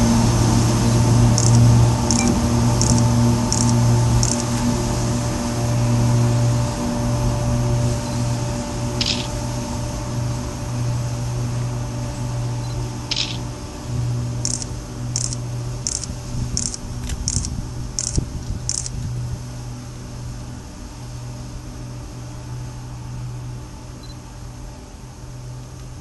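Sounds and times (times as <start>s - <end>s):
locomotive low drone: 0.0s - 26.0s
short high-pitched chirps: 1.4s - 4.4s, 9.0s - 9.4s.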